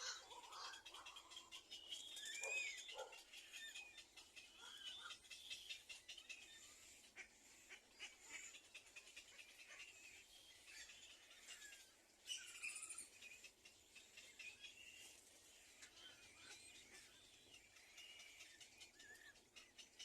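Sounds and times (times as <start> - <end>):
bird chirps and calls: 0.0 - 20.0.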